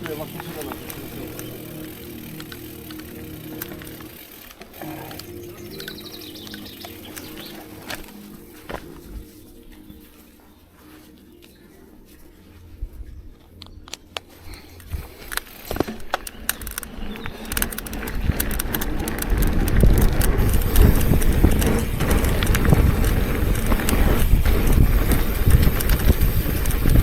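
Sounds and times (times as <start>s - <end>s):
bike clicks and knocks: 0.0s - 9.2s, 13.4s - 27.0s
wind rushing on microphone: 17.0s - 27.0s.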